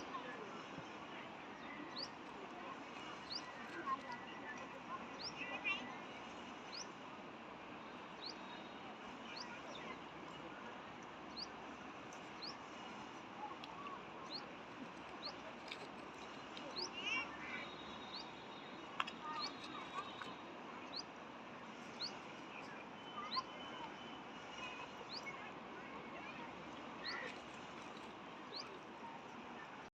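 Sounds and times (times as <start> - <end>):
small birds chirping: 1.5 - 5.8, 6.6 - 7.0, 8.1 - 8.6, 9.3 - 10.1, 11.2 - 12.9, 13.5 - 21.1, 21.8 - 25.4, 26.2 - 29.2.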